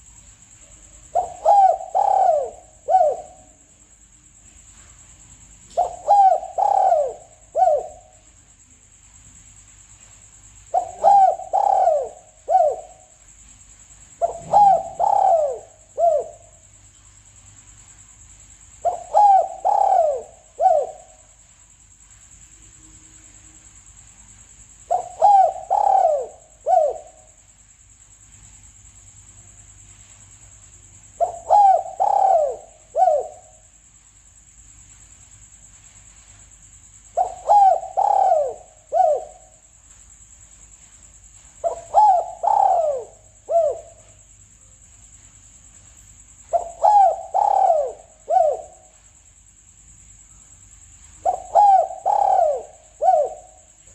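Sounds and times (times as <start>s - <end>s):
dove cooing: 1.0s - 3.7s, 5.7s - 8.2s, 10.7s - 13.2s, 14.1s - 16.6s, 18.8s - 21.3s, 24.9s - 27.4s, 31.2s - 33.7s, 37.1s - 39.6s, 41.6s - 44.2s, 46.4s - 49.0s, 51.2s - 53.9s.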